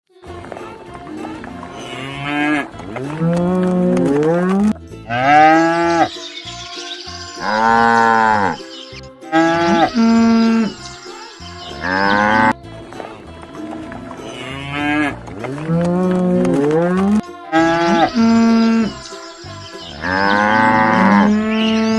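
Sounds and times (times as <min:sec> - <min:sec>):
cattle mooing: 0:03.2 - 0:06.1, 0:14.3 - 0:19.0, 0:20.0 - 0:21.9.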